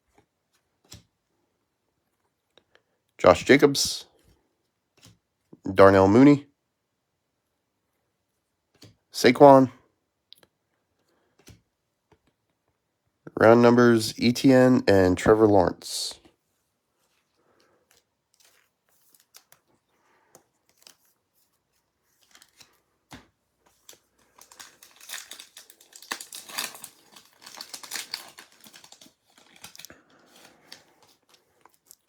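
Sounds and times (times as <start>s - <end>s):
wrapper crinkling: 23.7s - 32.0s
foil pack tearing: 23.9s - 31.0s.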